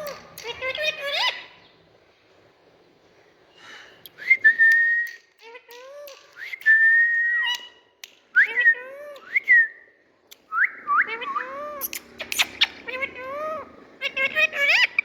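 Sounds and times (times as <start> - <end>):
parakeet chattering calls: 0.0 - 1.8, 11.0 - 15.0
parakeet whistling: 10.5 - 15.0.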